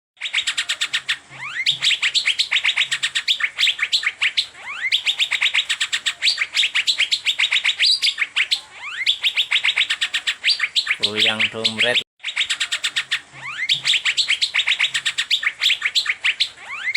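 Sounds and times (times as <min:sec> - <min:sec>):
bird singing sharp chirps: 0:00.2 - 0:16.9.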